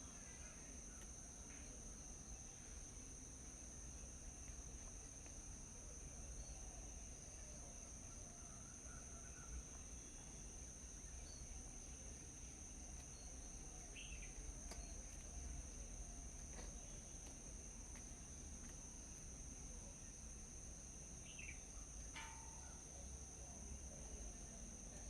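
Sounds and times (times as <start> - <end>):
insect drone: 0.0 - 25.0
faint bird chirps: 13.0 - 15.6, 21.2 - 21.9.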